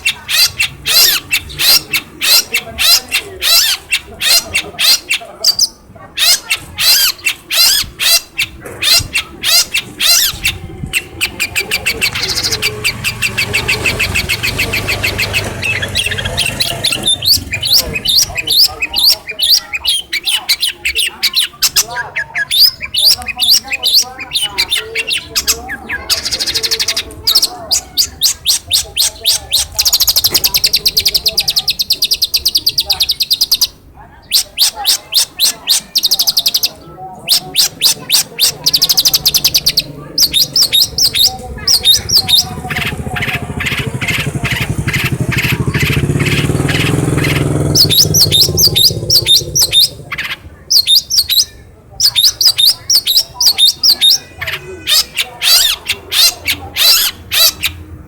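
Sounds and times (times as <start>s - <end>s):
bird singing varied trills: 0.0s - 58.0s.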